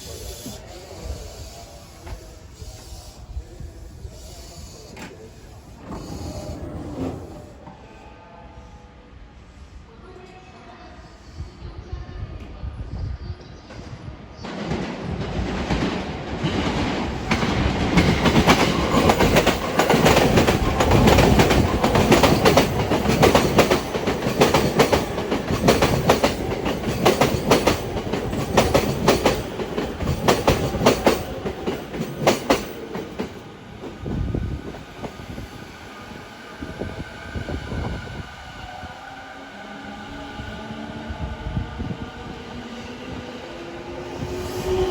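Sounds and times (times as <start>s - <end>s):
train wheels clattering over rail joints: 5.0s - 7.6s, 15.2s - 34.0s.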